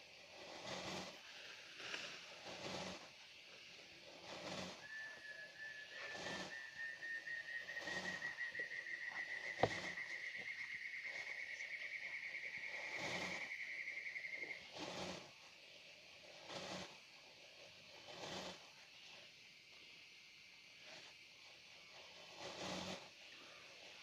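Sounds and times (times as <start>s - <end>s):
high insect trill: 0.0s - 17.2s
short noisy calls: 4.2s - 15.3s.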